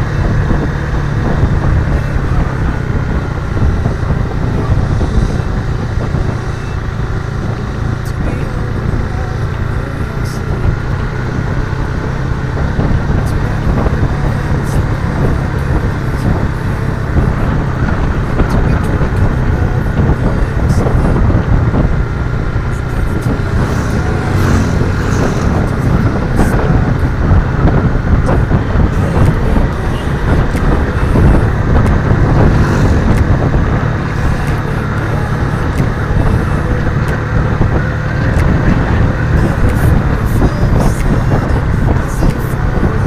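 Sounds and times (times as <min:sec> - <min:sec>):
motorcycle engine running: 0:00.0 - 0:43.0
wind rushing over microphone: 0:00.0 - 0:43.0.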